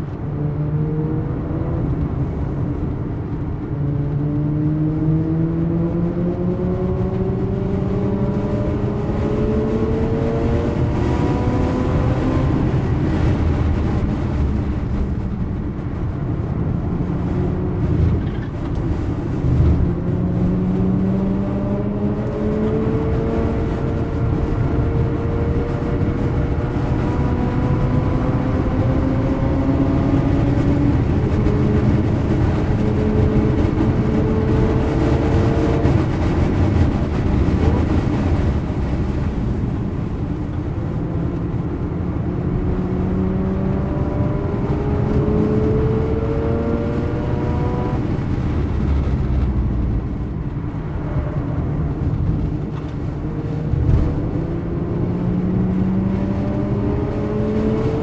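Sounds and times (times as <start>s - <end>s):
road and tyre noise: 0.0s - 58.0s.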